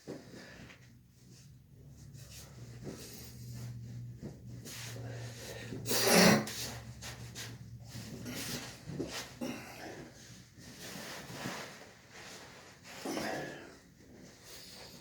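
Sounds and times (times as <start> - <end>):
soft rubbing and rustling: 0.0 - 15.0
person breathing: 4.7 - 5.9.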